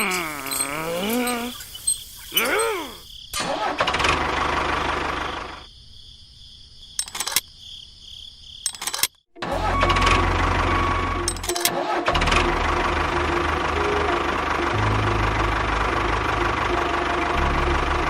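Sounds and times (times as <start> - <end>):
tractor engine chugging: 3.6 - 5.6, 9.4 - 18.0
clicks: 7.0 - 7.5, 8.6 - 9.2.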